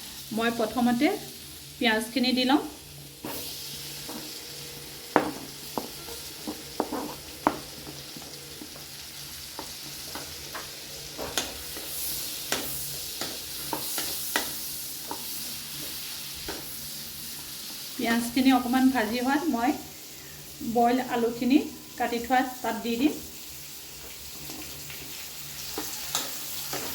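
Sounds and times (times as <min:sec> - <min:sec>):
onions sizzling in butter: 0:00.0 - 0:26.9
utensil scraping a pan: 0:05.1 - 0:08.9.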